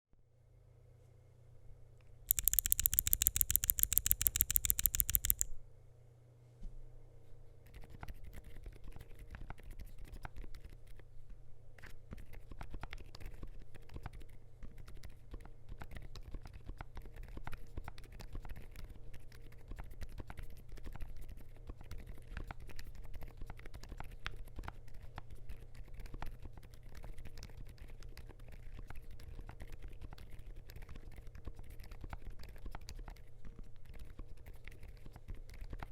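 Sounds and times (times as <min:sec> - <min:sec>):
typing on mechanical keyboard: 0:02.3 - 0:05.5
fast sharp high clicks: 0:02.3 - 0:05.6.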